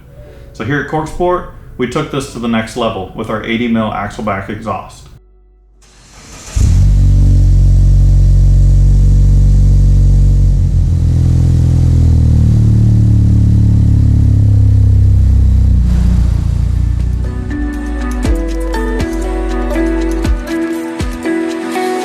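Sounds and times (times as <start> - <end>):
deep car exhaust note: 5.2 - 18.9.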